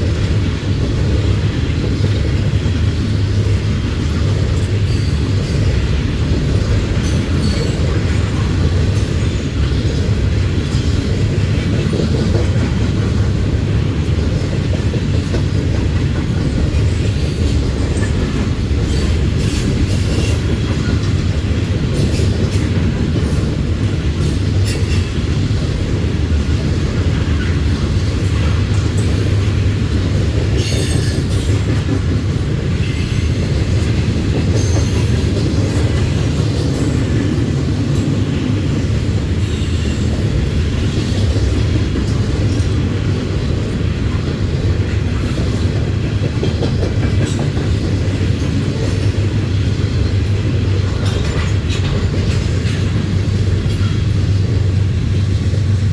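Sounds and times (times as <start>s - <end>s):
freight train rolling past: 0.0s - 55.9s
wheels clacking over rail: 0.0s - 55.9s.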